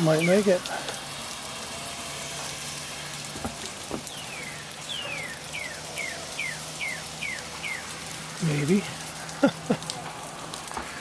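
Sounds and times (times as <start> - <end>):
bird whistling calls: 4.0 - 7.9.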